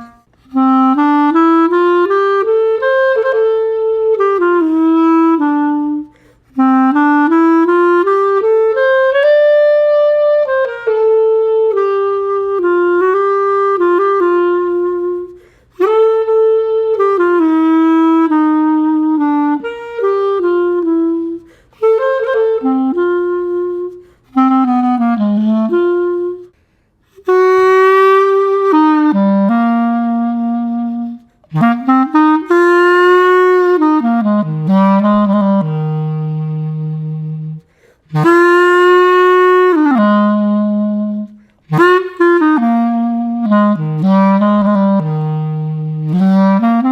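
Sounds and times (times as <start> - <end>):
solo clarinet melody: 0.0 - 46.9.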